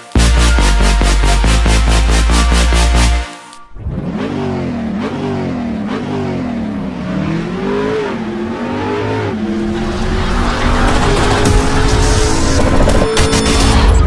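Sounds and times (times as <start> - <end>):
engine revving: 3.7 - 14.0.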